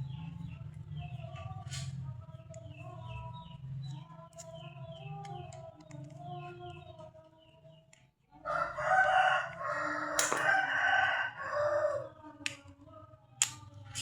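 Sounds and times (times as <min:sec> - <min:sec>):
rooster crowing: 0:08.4 - 0:12.2.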